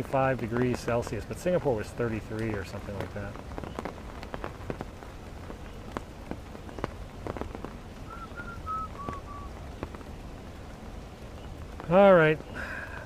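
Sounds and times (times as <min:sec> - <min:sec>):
steady rain: 0:00.0 - 0:13.0
descending whistled notes: 0:08.1 - 0:09.5.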